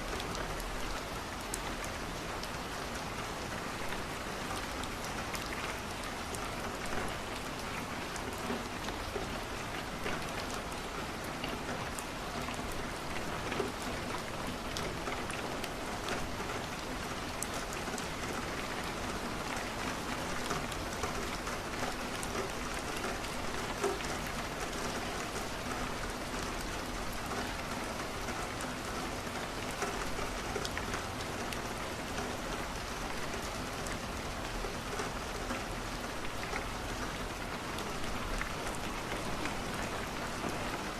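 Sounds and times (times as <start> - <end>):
rain on a window: 0.0 - 40.9.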